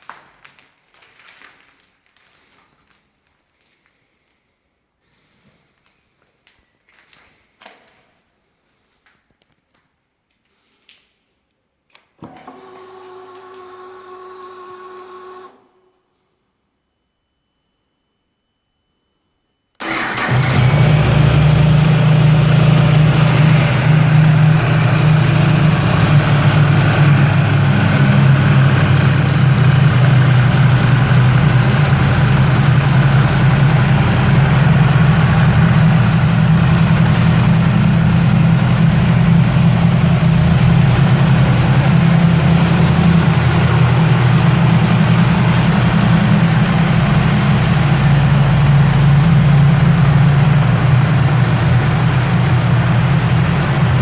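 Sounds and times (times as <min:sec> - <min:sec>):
motorcycle engine idling: 0:19.9 - 0:54.0.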